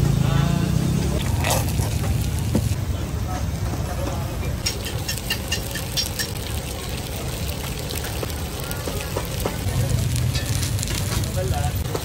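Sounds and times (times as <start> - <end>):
egg batter frying: 1.2 - 2.8, 3.9 - 12.0.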